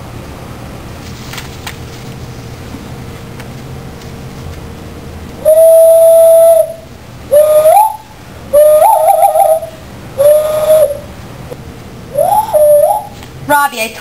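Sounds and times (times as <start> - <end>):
whistled bird call: 5.4 - 11.1, 12.1 - 13.2.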